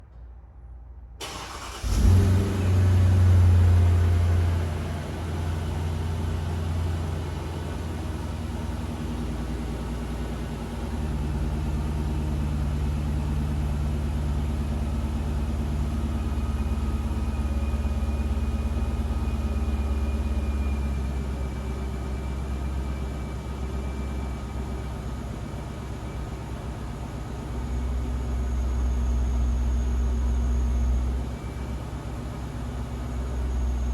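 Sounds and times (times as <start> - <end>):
car engine revving and idling: 1.2 - 24.0.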